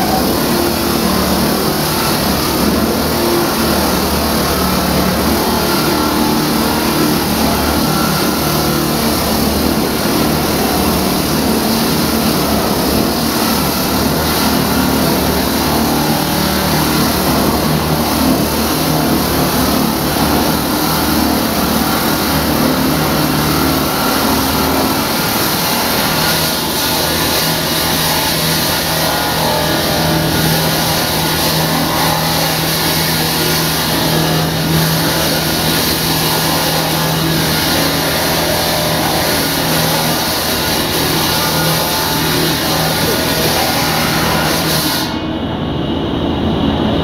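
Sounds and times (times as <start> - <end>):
concrete saw cutting: 0.0 - 45.4.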